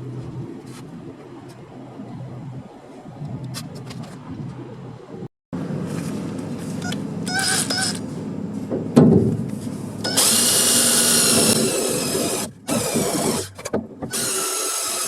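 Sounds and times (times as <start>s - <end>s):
power tool whining: 6.8s - 8.1s, 10.0s - 15.0s.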